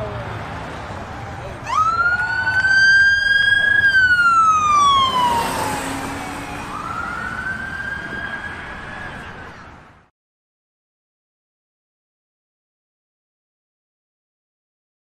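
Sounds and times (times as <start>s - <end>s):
emergency vehicle siren wailing: 0.0s - 9.9s.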